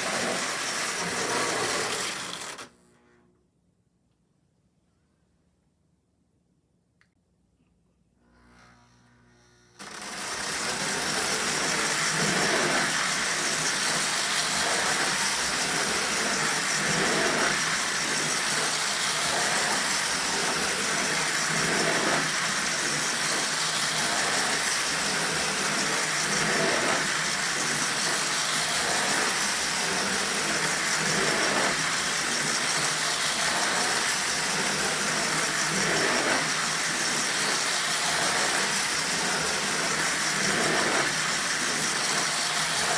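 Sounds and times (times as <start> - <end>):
toy train clatter: 0.0 - 2.7, 9.8 - 42.9
toy train motor hum and rattle: 0.0 - 3.2, 8.3 - 42.9.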